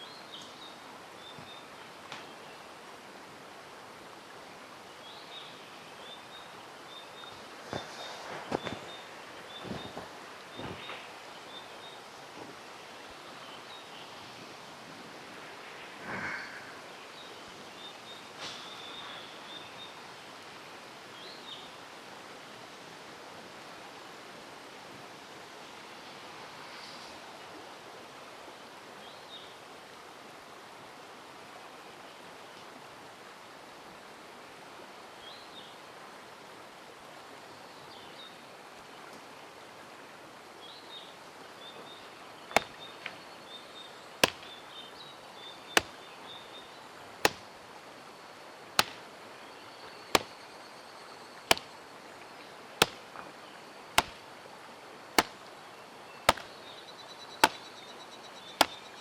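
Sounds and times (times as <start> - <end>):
mountain stream rushing: 0.0 - 35.1, 39.5 - 49.5, 51.5 - 56.7
hand axe chopping wood: 42.5 - 42.9, 44.2 - 44.6, 45.8 - 46.0, 47.2 - 47.5, 48.8 - 49.0, 50.2 - 50.4, 51.5 - 51.7, 52.8 - 53.1, 54.0 - 54.2, 55.2 - 55.4, 56.3 - 56.6, 57.4 - 57.7, 58.6 - 58.8.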